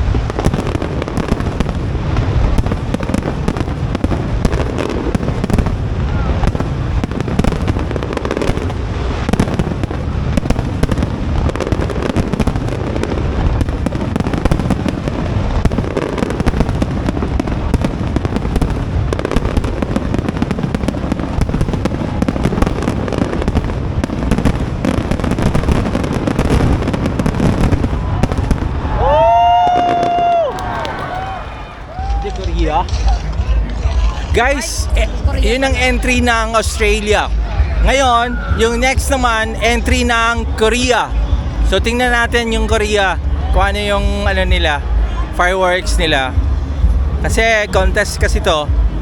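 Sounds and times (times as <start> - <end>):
rising whistle-like tone: 37.3 - 39.0.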